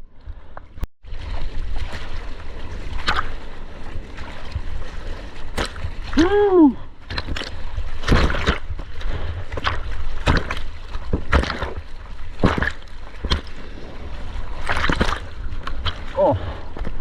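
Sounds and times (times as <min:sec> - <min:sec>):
low rumble of water: 0:00.0 - 0:17.0
seawater sloshing and splashing: 0:00.4 - 0:17.0.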